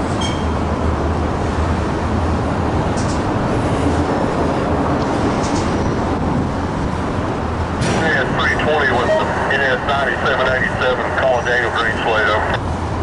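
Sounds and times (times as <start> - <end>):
freight train rumbling: 0.0 - 13.0.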